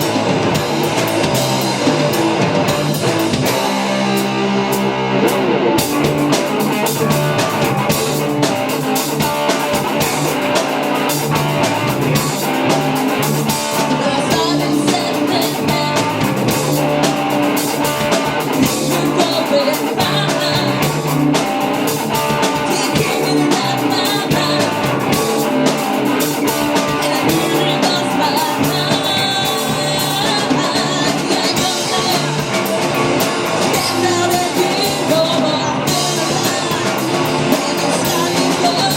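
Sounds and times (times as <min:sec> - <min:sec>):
drum kit: 0:00.0 - 0:38.9
electric guitar: 0:00.0 - 0:38.9
person singing: 0:13.7 - 0:16.8, 0:17.8 - 0:21.2, 0:22.2 - 0:25.6, 0:26.5 - 0:38.9.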